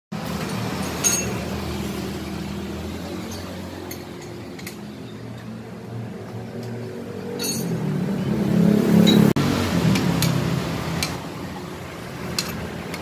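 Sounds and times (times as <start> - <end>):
metallic clink: 0.8 - 1.5, 7.4 - 7.8.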